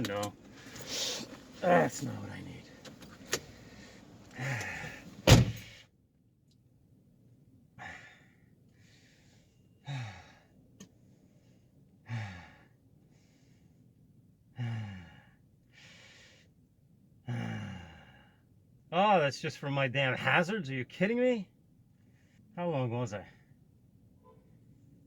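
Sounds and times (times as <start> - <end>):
man sighing and groaning: 4.4 - 5.0, 9.9 - 10.3, 12.1 - 12.6, 14.6 - 15.2, 17.3 - 18.2
sharp thunk: 5.3 - 5.7.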